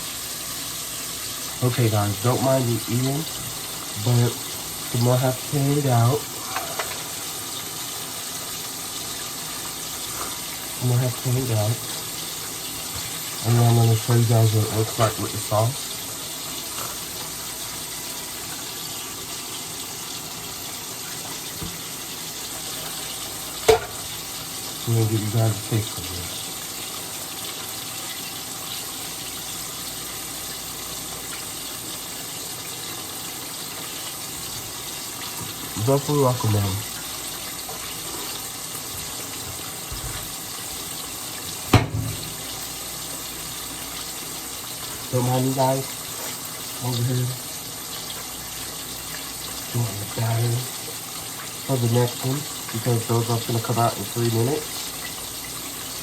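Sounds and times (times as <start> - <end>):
tap water pouring into sink: 0.0 - 56.0
tap running into sink: 12.8 - 13.4, 14.6 - 15.4, 21.0 - 22.1, 23.6 - 24.2, 37.0 - 42.6
sharp knock: 41.7 - 42.3.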